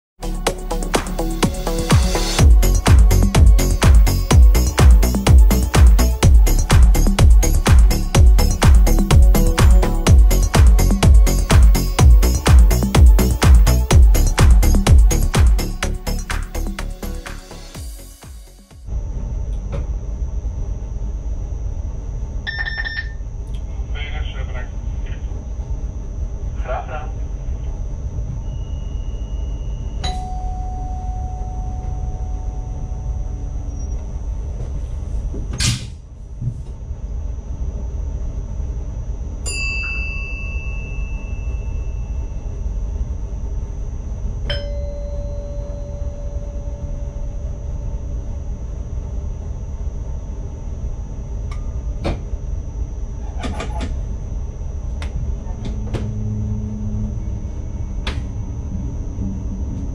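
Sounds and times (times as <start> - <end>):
constant high whine: 0.2 - 59.9
train cab low rumble: 0.3 - 59.9
electronic dings: 30.0 - 33.9, 39.5 - 42.5, 44.5 - 47.3.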